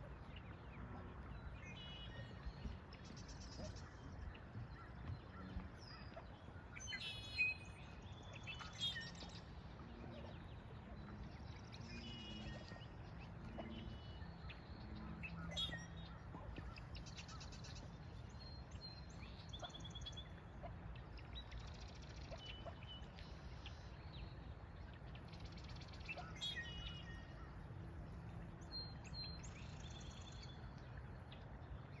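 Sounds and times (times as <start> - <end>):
low outdoor rumble: 0.0 - 32.0
birds chirping and calling: 0.3 - 23.9.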